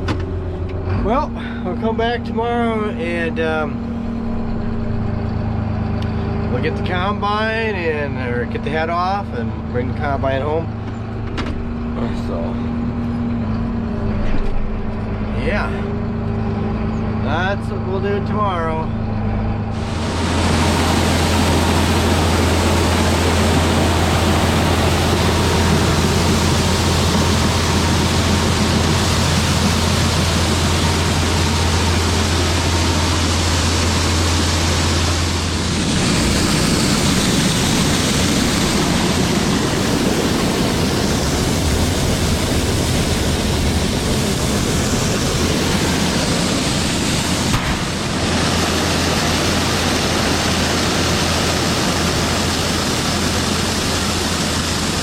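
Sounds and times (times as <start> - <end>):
engine hum: 0.0 - 55.0
loud rushing noise: 19.0 - 55.0.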